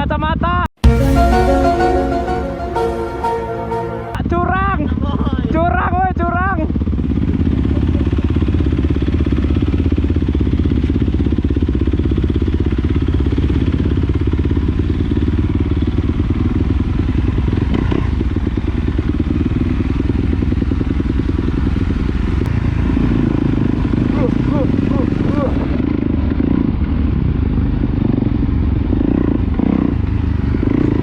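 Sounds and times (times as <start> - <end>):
dirt bike engine running: 6.7 - 31.0.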